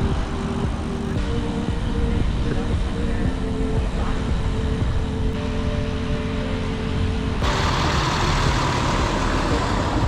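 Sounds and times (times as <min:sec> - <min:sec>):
wind and road noise: 0:00.0 - 0:10.0
loud hiss: 0:07.4 - 0:10.0.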